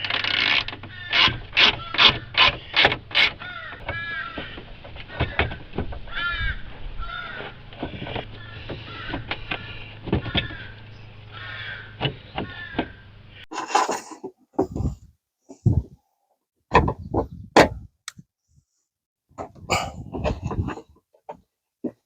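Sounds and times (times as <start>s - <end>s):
crows cawing: 0.8s - 13.1s.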